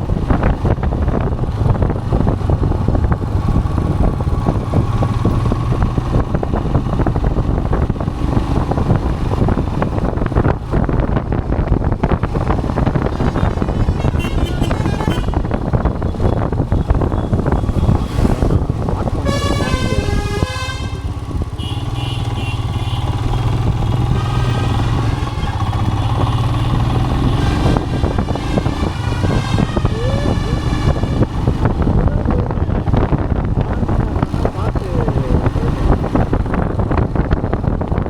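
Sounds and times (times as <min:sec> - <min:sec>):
wind rushing over microphone: 0:00.0 - 0:21.7, 0:23.1 - 0:38.0
low motorcycle engine hum: 0:00.0 - 0:38.0
vehicle horns: 0:12.8 - 0:31.9.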